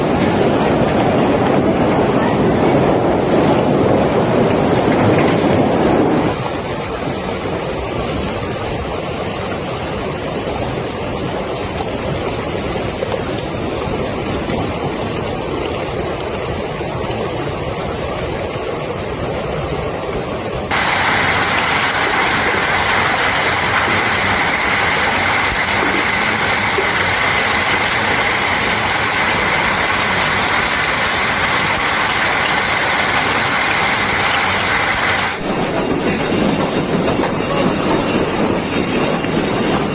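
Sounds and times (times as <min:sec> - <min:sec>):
hail and heavy rain: 0:00.0 - 0:19.0, 0:20.0 - 0:39.9.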